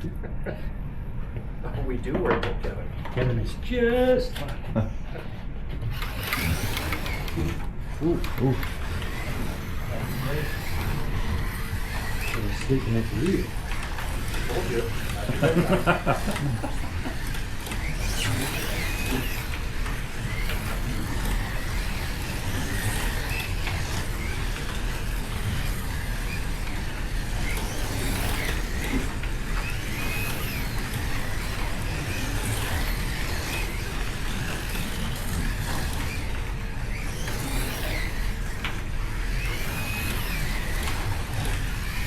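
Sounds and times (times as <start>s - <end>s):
slot car motors whining: 5.8s - 42.0s
rumble of cars on track: 8.6s - 12.3s, 16.3s - 42.0s.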